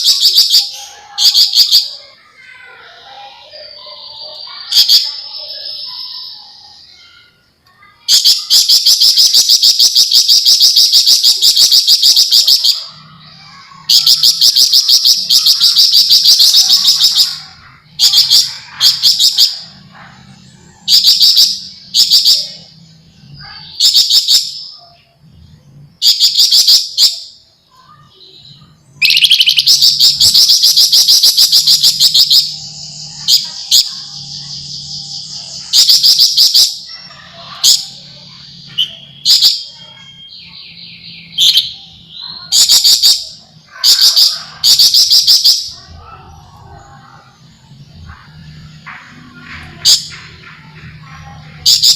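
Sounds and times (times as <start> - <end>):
bird singing rattling trills: 0.0 - 51.9.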